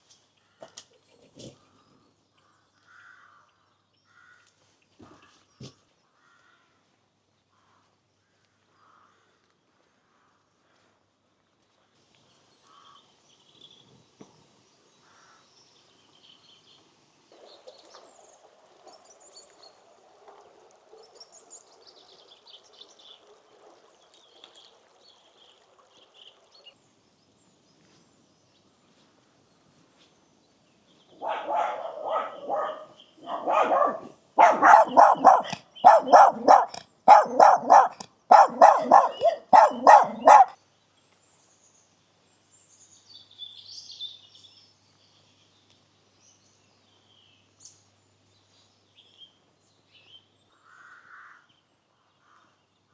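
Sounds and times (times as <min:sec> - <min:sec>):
faint bird chirping: 0:30.9 - 0:40.6
dog barking: 0:31.2 - 0:40.6.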